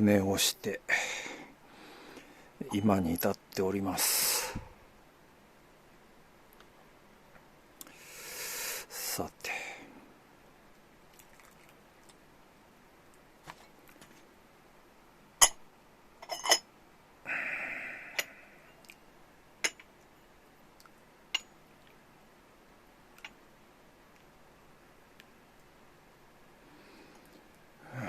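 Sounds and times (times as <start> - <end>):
tableware clinking: 16.2 - 16.7.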